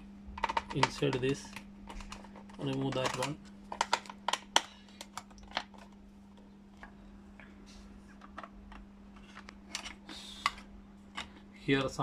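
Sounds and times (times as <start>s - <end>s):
steady low hum: 0.0s - 12.0s
plastic parts clicking: 0.4s - 6.0s.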